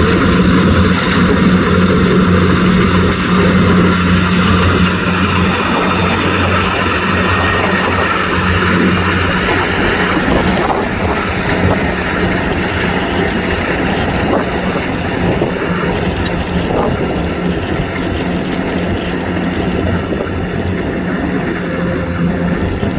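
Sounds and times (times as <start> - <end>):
combine harvester running: 0.0 - 22.9.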